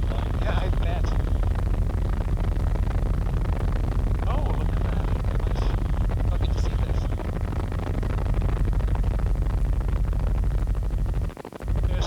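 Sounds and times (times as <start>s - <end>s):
helicopter engine and rotor rumble: 0.0s - 12.0s.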